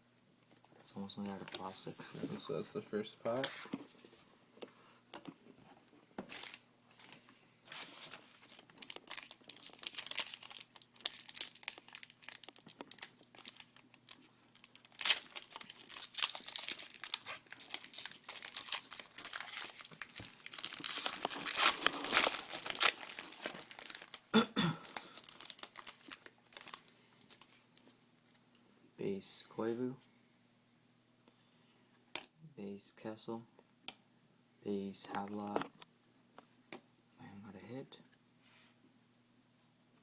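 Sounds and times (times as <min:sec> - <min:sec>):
wrapper tearing and crinkling: 0:07.7 - 0:27.0.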